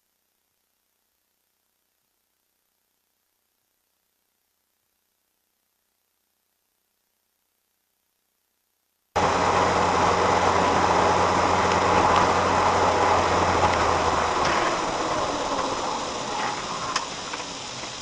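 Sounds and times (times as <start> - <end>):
car road and engine noise: 9.2 - 18.0
low hum: 9.2 - 18.0.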